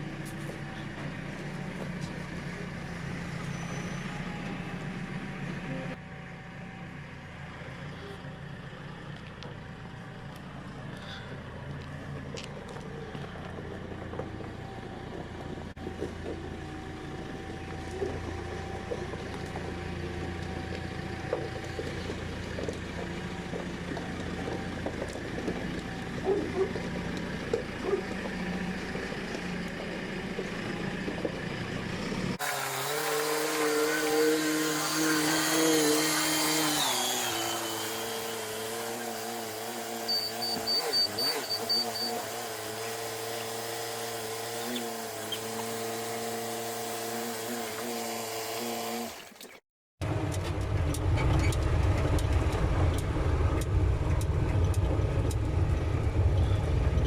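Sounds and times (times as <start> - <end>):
vehicle engine running: 0.0 - 32.4, 50.0 - 57.0.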